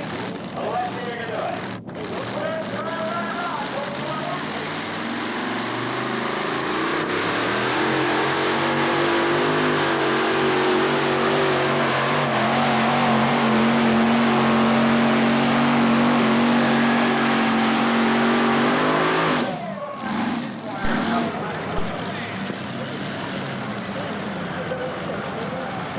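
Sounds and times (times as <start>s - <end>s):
tractor engines at high revs: 0.0s - 25.9s.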